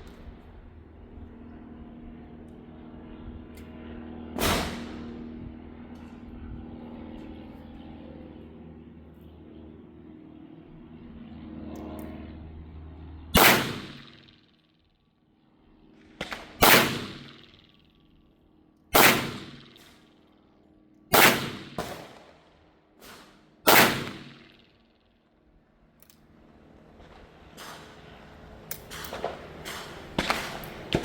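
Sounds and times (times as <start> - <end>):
shotgun shots with echo: 4.4 - 5.0, 13.4 - 14.4, 16.2 - 17.6, 19.0 - 20.0, 21.1 - 22.4, 23.0 - 24.6, 28.9 - 31.0.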